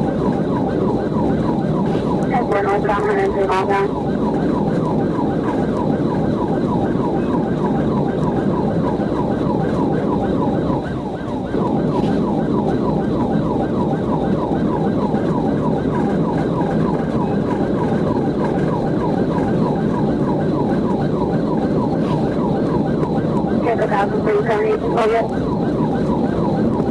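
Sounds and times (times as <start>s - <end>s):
police siren yelping: 0.0s - 26.9s
road and engine noise: 1.2s - 7.6s, 10.8s - 12.8s.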